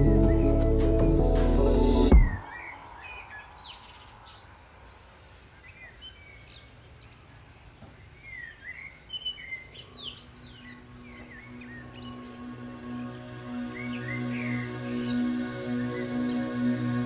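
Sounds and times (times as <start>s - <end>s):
birds chirping: 0.0s - 17.0s
low steady music note: 10.5s - 17.0s.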